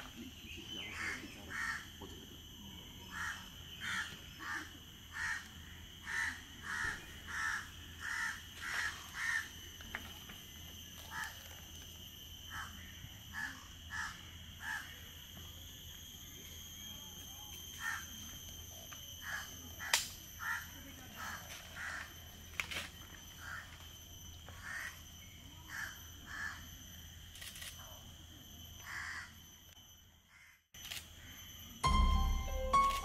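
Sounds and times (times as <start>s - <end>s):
steady high drone: 30.8s - 33.0s.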